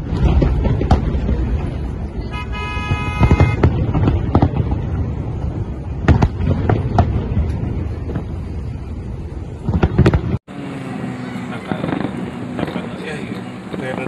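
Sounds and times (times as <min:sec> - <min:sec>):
low rumble: 0:00.0 - 0:02.6, 0:03.4 - 0:10.5
fireworks bangs: 0:00.0 - 0:10.5, 0:11.5 - 0:14.0.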